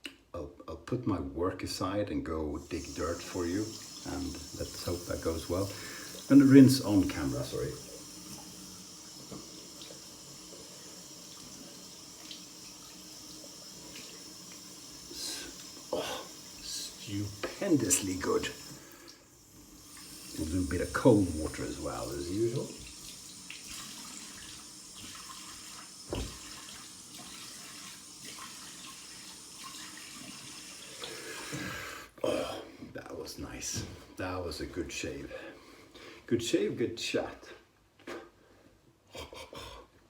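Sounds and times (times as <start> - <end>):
tap water running into sink: 2.6 - 31.8.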